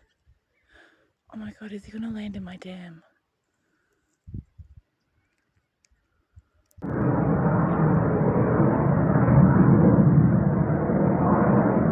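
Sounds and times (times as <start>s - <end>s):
jet aircraft roar: 6.8s - 11.9s.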